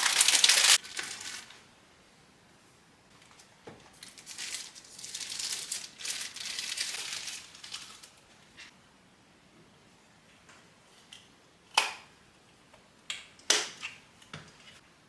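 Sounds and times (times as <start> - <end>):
crinkling and rustling: 0.0 - 1.6, 3.1 - 8.7.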